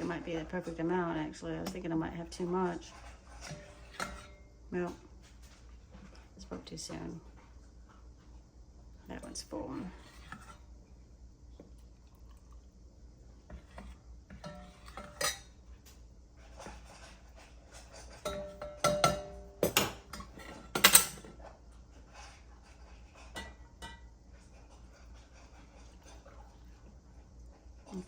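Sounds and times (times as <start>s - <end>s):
metal ladle knocking on pot and jars: 18.3s - 21.2s.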